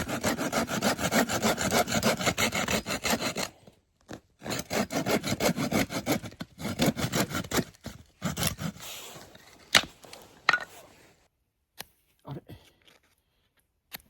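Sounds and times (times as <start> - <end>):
hand saw cutting wood: 0.0 - 11.0.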